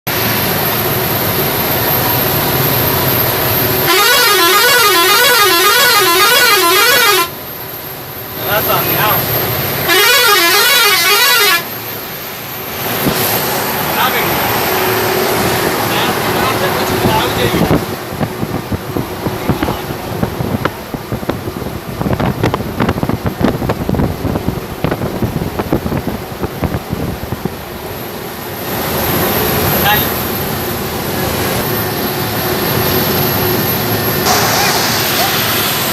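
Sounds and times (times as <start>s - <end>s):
road and engine noise: 0.1s - 35.9s
vehicle running: 0.1s - 35.9s
electronic siren wailing: 1.2s - 7.5s, 8.1s - 12.0s
wind buffeting microphone: 16.8s - 28.0s.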